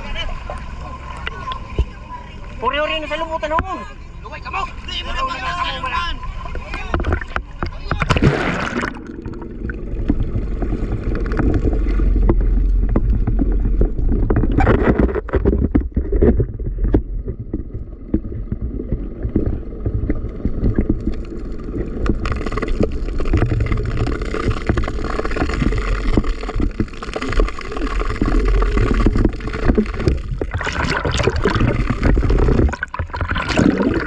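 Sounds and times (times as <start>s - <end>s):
water sloshing against hull: 0.0s - 34.0s
wind rumbling on microphone: 9.2s - 34.0s.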